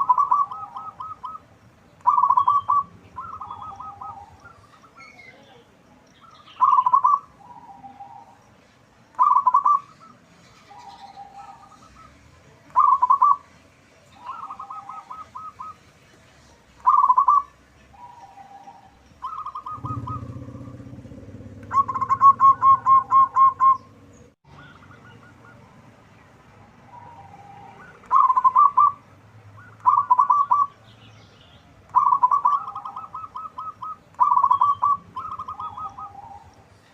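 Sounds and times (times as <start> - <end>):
dove cooing: 0.0 - 5.0, 6.6 - 8.4, 9.2 - 12.2, 12.8 - 13.4, 14.2 - 15.8, 16.8 - 25.8, 26.9 - 29.0, 29.6 - 30.8, 31.9 - 36.8.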